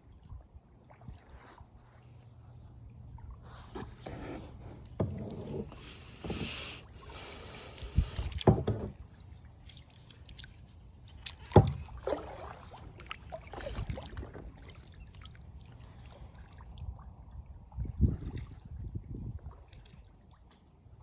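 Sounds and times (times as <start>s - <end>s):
water sloshing against kayak hull: 0.1s - 20.6s
paddle knocking against kayak: 3.5s - 9.2s, 11.2s - 12.8s.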